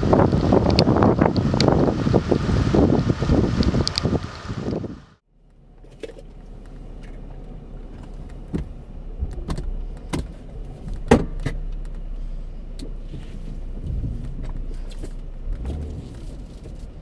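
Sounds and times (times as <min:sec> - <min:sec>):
sharp clicks and knocks: 0:00.0 - 0:04.9
car cabin low hum: 0:00.0 - 0:17.0.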